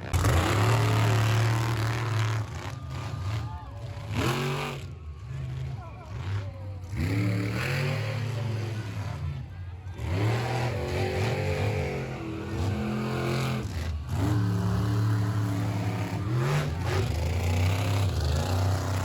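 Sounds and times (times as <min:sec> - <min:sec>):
engine revving: 0:00.0 - 0:03.1, 0:06.2 - 0:09.2, 0:10.0 - 0:19.0.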